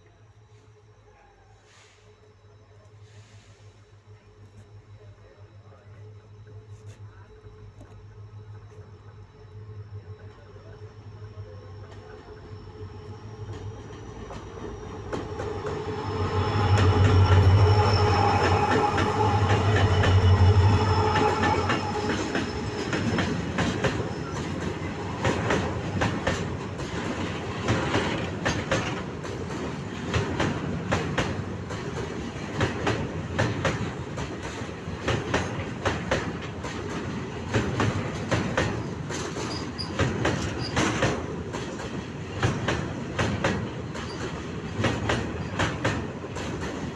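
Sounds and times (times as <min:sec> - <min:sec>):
locomotive engine hum: 0:00.0 - 0:46.9
high wheel squeal: 0:12.5 - 0:26.5, 0:38.8 - 0:41.1
wheels clacking over rail joints: 0:13.4 - 0:46.9.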